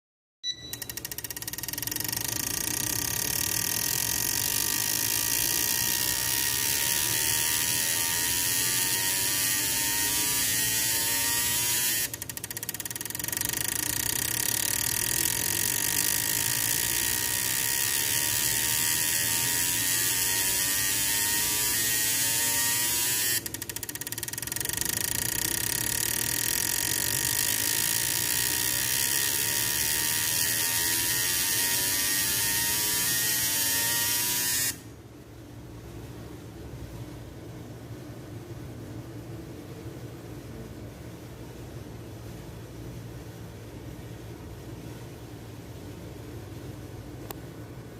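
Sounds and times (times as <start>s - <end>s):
fuel injectors buzzing: 0.8s - 31.4s.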